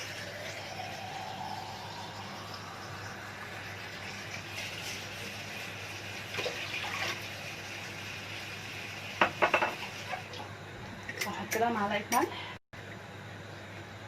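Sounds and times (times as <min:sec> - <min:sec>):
water pouring into pot: 0:00.0 - 0:10.5
cup clinking against pot: 0:09.2 - 0:09.8.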